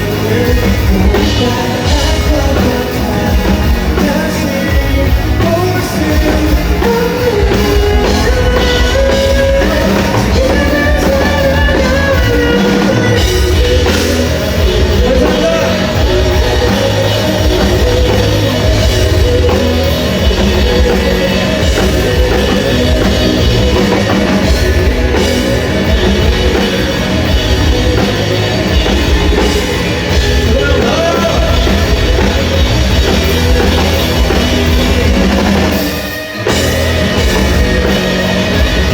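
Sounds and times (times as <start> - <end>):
live rock band: 0.0 - 38.9
person singing lead melody: 0.0 - 38.9
pounding drum kit: 0.0 - 38.9.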